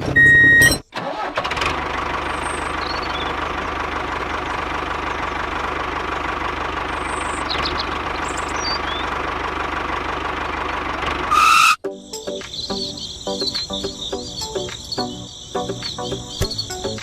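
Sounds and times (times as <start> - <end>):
small engine idling: 1.0 - 11.6.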